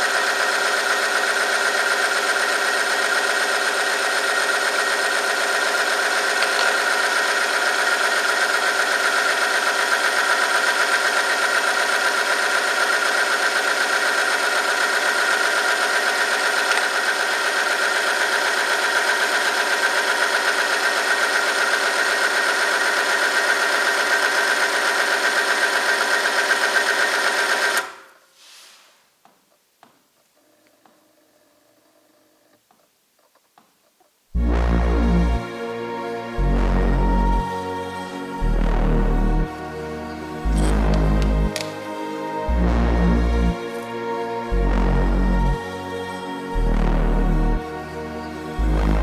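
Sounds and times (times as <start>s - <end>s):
test machine motor whining: 0.0s - 28.1s, 34.4s - 49.0s.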